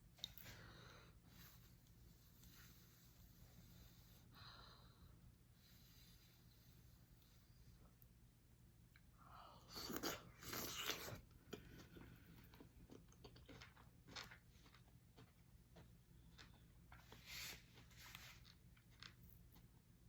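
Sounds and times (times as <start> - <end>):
person chewing: 8.9 - 17.1
loud crunching while eating: 9.7 - 17.1.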